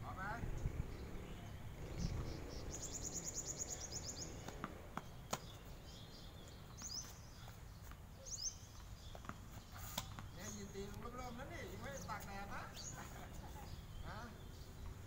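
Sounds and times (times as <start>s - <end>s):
small bird chirping: 0.5s - 15.0s
tennis ball hitting racket: 4.4s - 5.7s, 9.2s - 10.4s.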